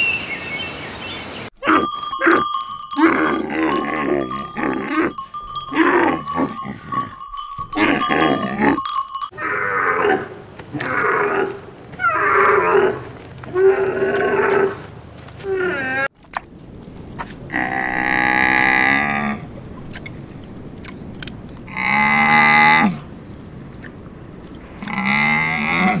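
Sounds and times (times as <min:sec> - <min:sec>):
camels calling: 0:01.6 - 0:09.3.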